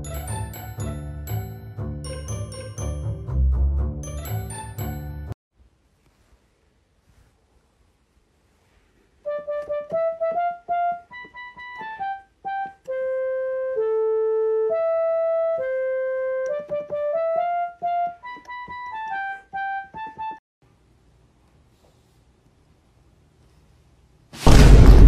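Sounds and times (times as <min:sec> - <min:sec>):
electronic keyboard melody: 0:09.3 - 0:20.4.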